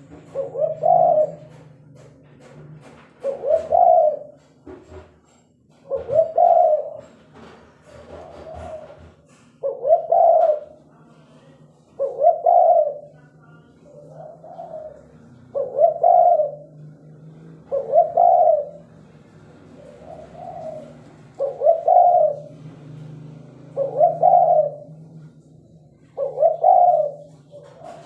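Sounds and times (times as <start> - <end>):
doves cooing: 0.0 - 5.1, 5.7 - 28.0.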